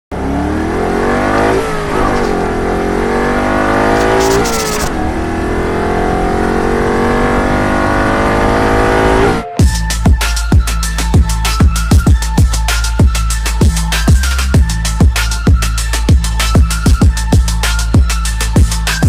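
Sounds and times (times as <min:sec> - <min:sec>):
engine accelerating through gears: 0:00.1 - 0:09.6.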